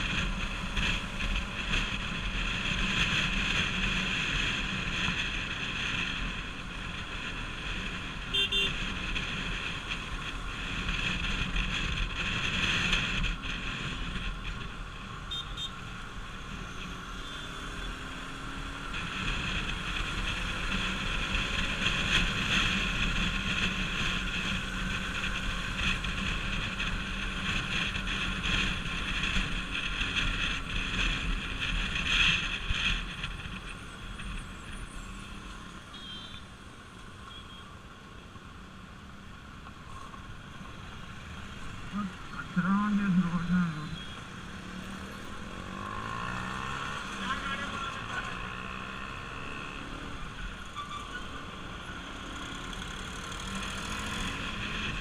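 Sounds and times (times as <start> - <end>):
motorcycle engine running: 0.0 - 36.4, 39.1 - 50.7
wind rushing over microphone: 18.1 - 35.2.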